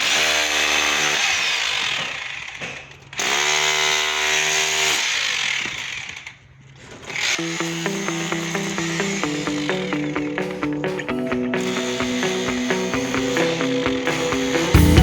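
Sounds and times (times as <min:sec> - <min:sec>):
power grinder cutting masonry: 0:00.0 - 0:10.3.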